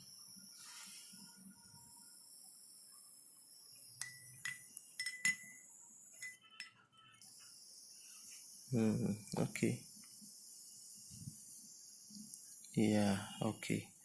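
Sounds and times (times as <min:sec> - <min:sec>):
faint high-pitched hiss: 0:00.0 - 0:06.4, 0:07.2 - 0:14.0
light ringing clinks: 0:04.0 - 0:05.6, 0:06.2 - 0:06.7.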